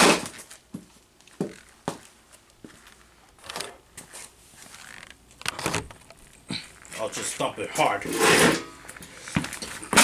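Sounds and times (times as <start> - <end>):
crackling crunch: 0.0 - 7.5.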